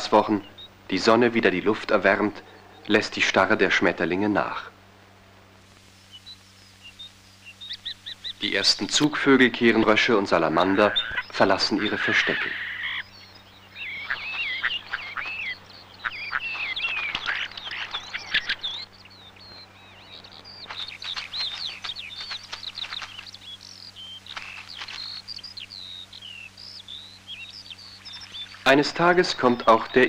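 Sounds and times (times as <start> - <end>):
bird song with whistled notes: 0.0 - 3.4, 5.8 - 30.0.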